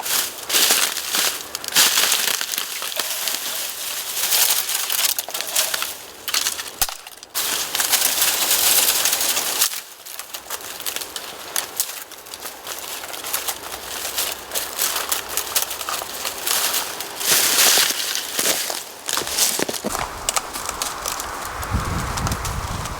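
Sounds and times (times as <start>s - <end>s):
dry bamboo crunching and crackling: 0.0s - 22.9s.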